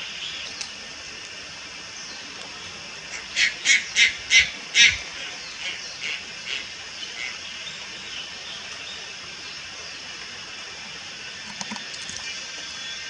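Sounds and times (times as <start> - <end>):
steady high hiss: 0.0 - 13.0
night heron calls: 3.0 - 8.3.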